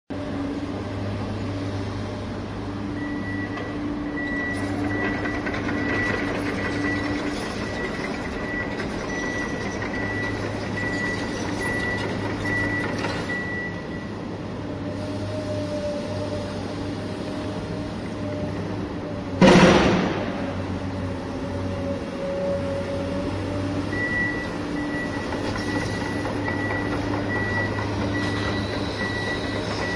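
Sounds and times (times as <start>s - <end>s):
reversing alarm beeping: 2.9s - 14.2s, 23.8s - 29.9s.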